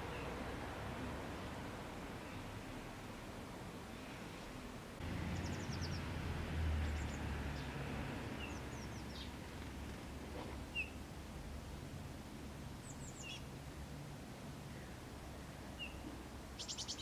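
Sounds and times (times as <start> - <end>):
small birds chirping: 5.4 - 6.1, 8.4 - 9.4, 10.7 - 11.0, 12.8 - 13.5, 16.6 - 17.0.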